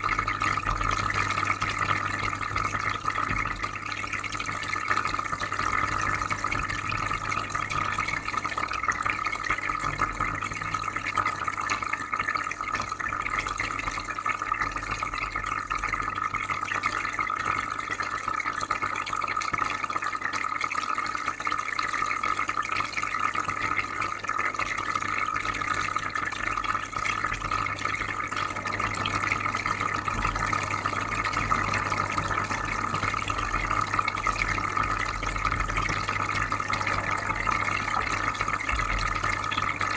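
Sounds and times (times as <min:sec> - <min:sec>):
water bubbling: 0:25.2 - 0:39.9.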